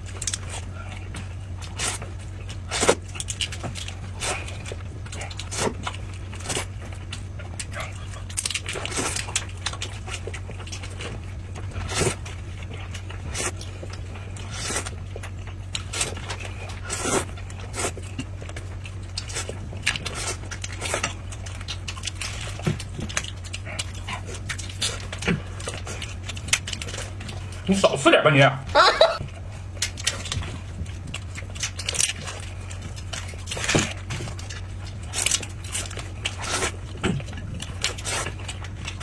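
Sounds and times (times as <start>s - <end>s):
person chewing noisily: 0.0s - 28.0s, 28.7s - 39.0s.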